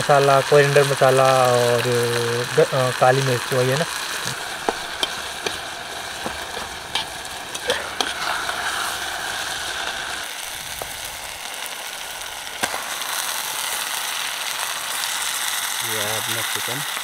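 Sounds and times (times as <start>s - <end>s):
chicken sizzling in oil: 0.0s - 17.0s
sharp oil pops: 4.2s - 5.6s.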